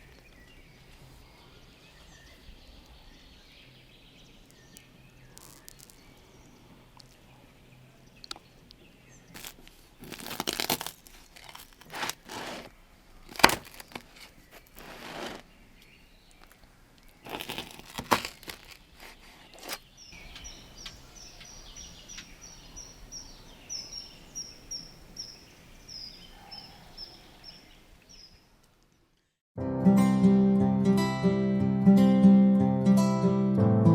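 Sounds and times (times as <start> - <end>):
bird chirping: 0.0 - 10.9, 11.5 - 29.4
crunching and crackling: 4.4 - 7.3, 8.1 - 21.5
sharp crack: 5.3 - 6.3, 9.4 - 15.5, 16.4 - 21.0.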